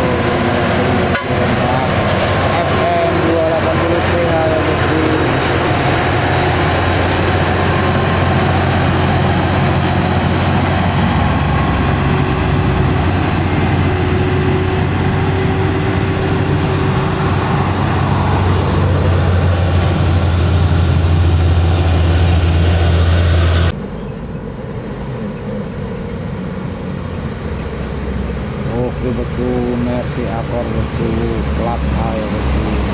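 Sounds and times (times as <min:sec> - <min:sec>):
diesel truck engine running: 0:00.0 - 0:32.9.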